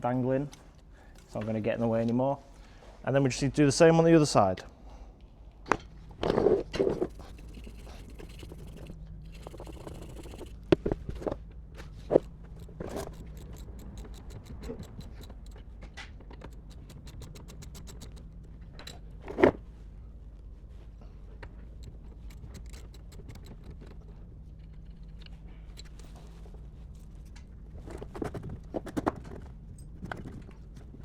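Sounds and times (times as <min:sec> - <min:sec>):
ratchet spanner clicking: 0:06.2 - 0:10.6, 0:11.8 - 0:19.5, 0:21.5 - 0:26.6
hand tools clinking on metal: 0:12.0 - 0:19.5, 0:21.6 - 0:26.4.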